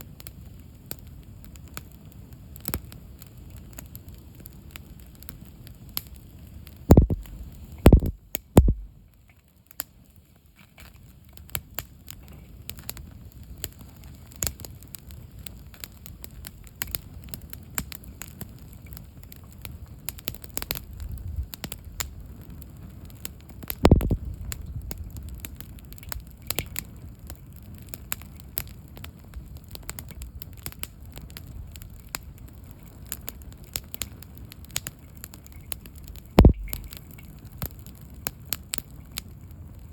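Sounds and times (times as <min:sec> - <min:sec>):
campfire crackling and popping: 0:00.0 - 0:39.9
low thumps from fire: 0:06.7 - 0:09.0, 0:20.2 - 0:34.6, 0:35.8 - 0:38.3.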